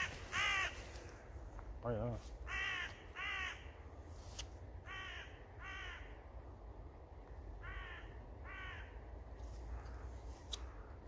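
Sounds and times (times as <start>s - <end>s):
crow cawing: 0.0s - 1.1s, 2.4s - 3.8s, 4.8s - 6.2s, 7.6s - 9.0s.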